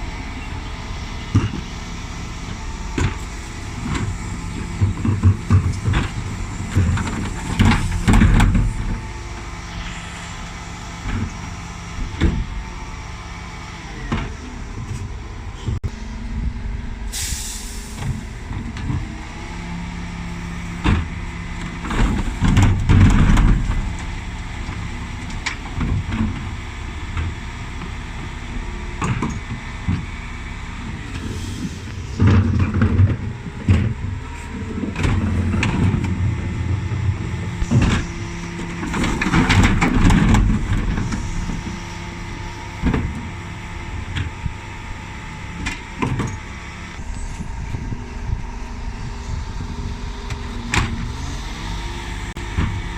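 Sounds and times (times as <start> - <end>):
refuse truck engine running: 0.0 - 52.9
wheelie bins knocking and clattering: 2.9 - 9.1, 32.2 - 41.6
air hiss: 17.1 - 18.0.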